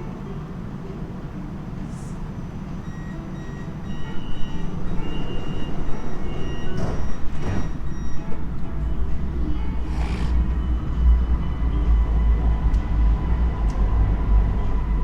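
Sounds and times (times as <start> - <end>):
train cab rumble: 0.0 - 15.0
door-closing warning beeps: 2.8 - 8.5.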